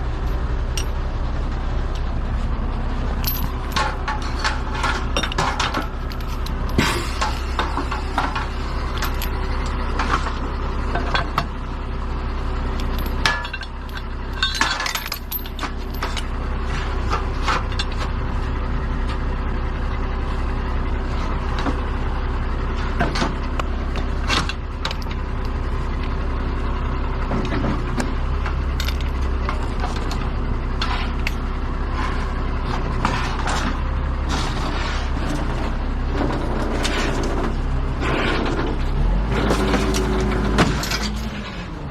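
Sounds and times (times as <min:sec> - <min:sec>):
truck engine humming: 0:00.0 - 0:41.9
clicks and rattles: 0:03.2 - 0:10.4.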